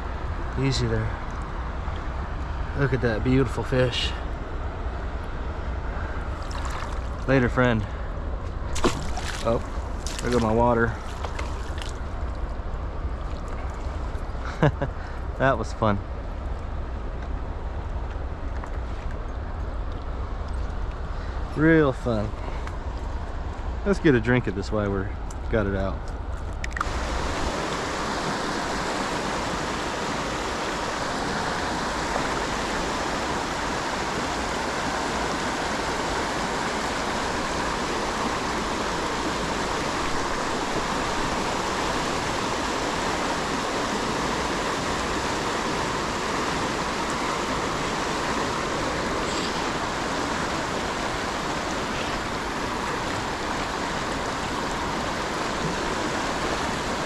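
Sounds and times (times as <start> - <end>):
river rushing over rocks: 26.8 - 57.0.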